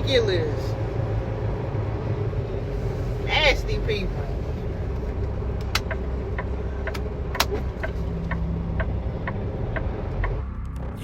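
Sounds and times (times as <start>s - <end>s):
truck engine rumbling: 0.0s - 11.0s
light ticking: 5.6s - 10.4s.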